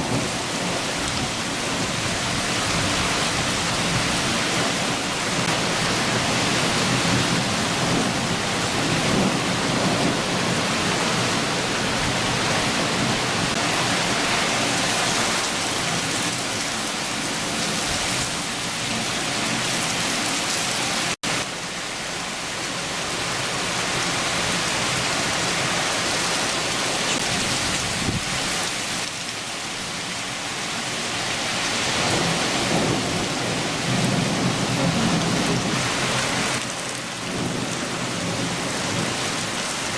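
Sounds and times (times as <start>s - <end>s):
thunder rumbling: 0.0s - 21.2s, 31.8s - 39.9s
heavy rain pouring: 0.0s - 39.9s.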